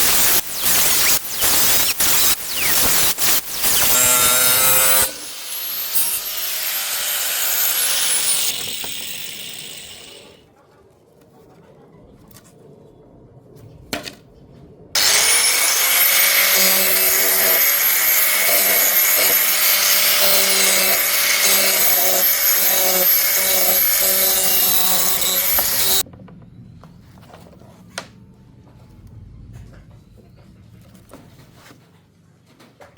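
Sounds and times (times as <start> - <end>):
power tool grinding: 0.0 - 10.4, 15.0 - 26.0.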